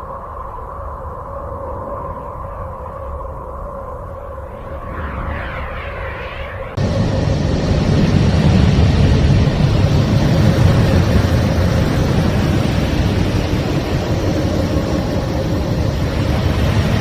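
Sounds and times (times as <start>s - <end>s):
dense low rumble: 4.9s - 17.0s.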